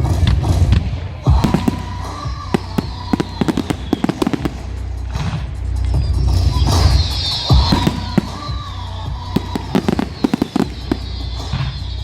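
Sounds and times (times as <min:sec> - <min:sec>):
fireworks cracking and banging: 0:00.2 - 0:12.0
fireworks whistling: 0:01.3 - 0:12.0.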